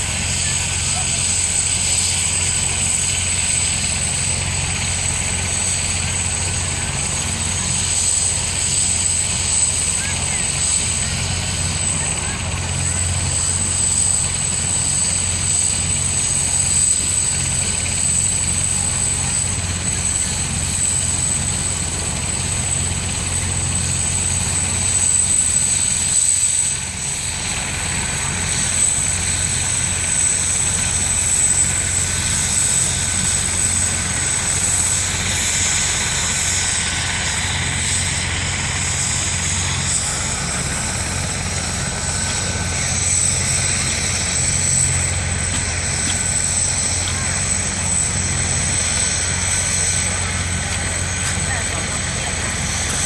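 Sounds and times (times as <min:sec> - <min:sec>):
helicopter rotor thrum: 0:00.0 - 0:53.0
high turbine whine: 0:00.0 - 0:53.0.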